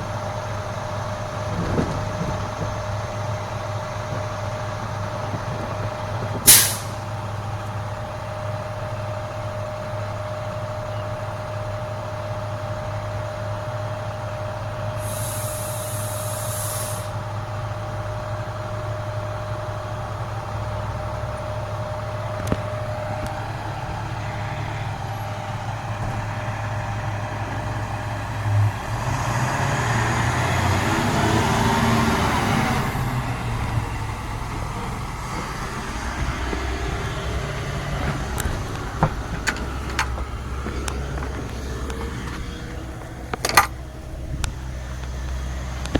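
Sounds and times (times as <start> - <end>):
diesel truck engine running: 0.0 - 45.9
air brake hiss: 6.5 - 7.0, 15.0 - 17.2
thin high hiss: 15.0 - 17.1.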